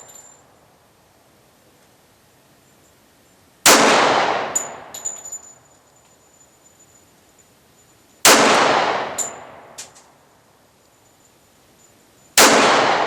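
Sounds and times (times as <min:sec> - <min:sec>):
faint clinks: 0:00.0 - 0:00.7, 0:02.6 - 0:03.5, 0:04.6 - 0:08.2, 0:09.2 - 0:12.4
pistol shots ringing: 0:03.6 - 0:05.2, 0:08.2 - 0:10.0, 0:12.4 - 0:13.0.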